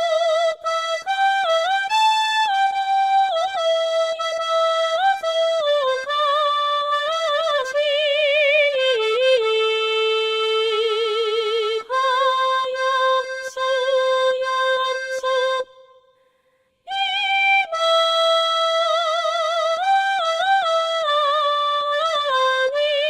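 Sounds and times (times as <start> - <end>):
accordion accompaniment: 0.0 - 15.8, 16.9 - 23.0
synthesized female singing voice: 16.9 - 23.0.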